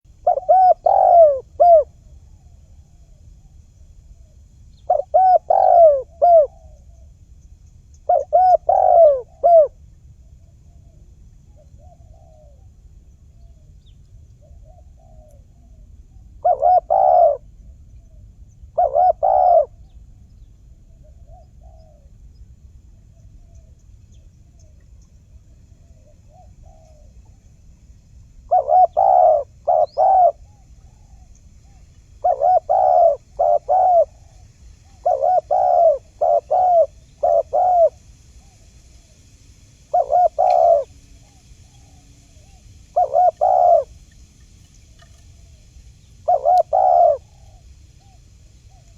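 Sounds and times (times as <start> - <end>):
doves cooing: 0.1 - 1.9, 4.9 - 6.9, 8.1 - 9.8, 14.4 - 17.6, 18.7 - 19.8, 28.5 - 38.6, 39.9 - 44.3, 44.9 - 48.9.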